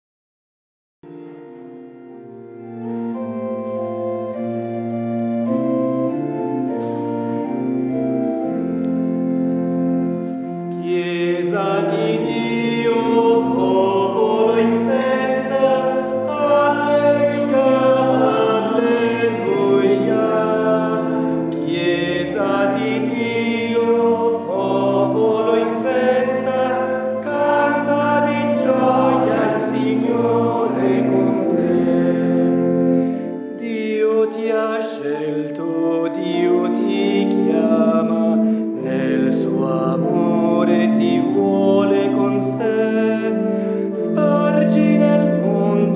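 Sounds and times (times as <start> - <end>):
choir singing a hymn: 10.0 - 45.9.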